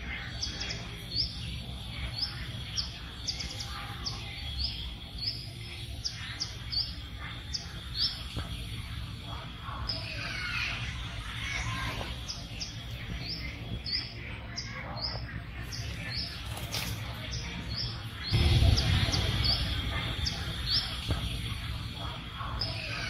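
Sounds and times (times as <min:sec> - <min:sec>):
small bird chirping: 0:00.0 - 0:23.0
low rumble: 0:18.2 - 0:22.6.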